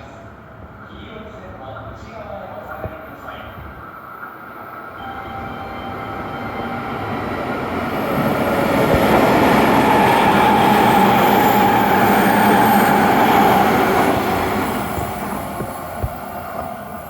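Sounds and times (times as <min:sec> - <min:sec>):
train wheels rushing on rail: 0:00.0 - 0:17.0
steady high tone: 0:05.0 - 0:15.0.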